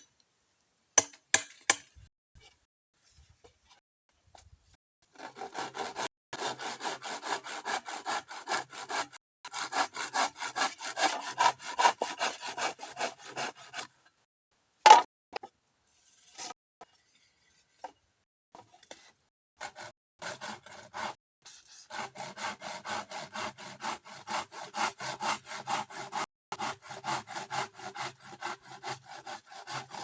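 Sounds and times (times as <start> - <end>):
hand saw cutting bamboo: 5.0 - 13.9, 19.6 - 30.0.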